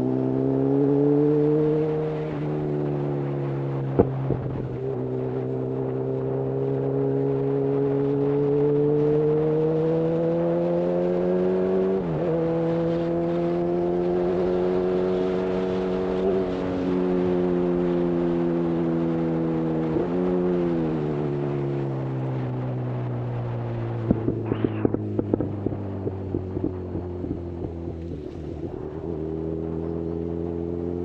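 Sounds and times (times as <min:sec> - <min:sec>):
motorcycle engine running: 0:23.4 - 0:31.0.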